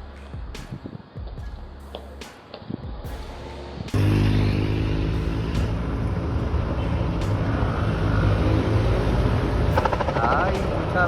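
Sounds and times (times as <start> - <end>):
vehicle engine running: 4.0 - 11.0.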